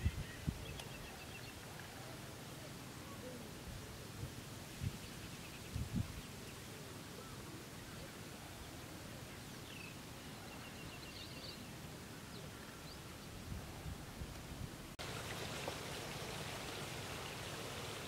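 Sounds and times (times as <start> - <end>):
small birds chirping: 0.0 - 1.9
faint steady hiss: 0.0 - 18.0.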